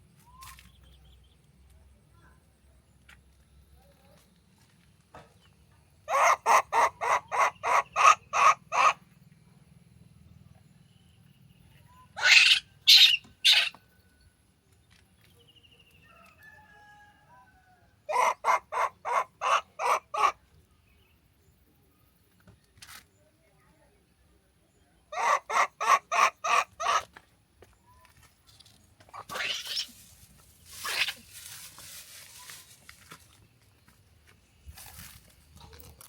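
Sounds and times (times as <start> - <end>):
animal harsh calls: 6.1 - 9.0, 12.2 - 13.7, 25.1 - 27.1, 29.1 - 30.0, 30.7 - 31.3.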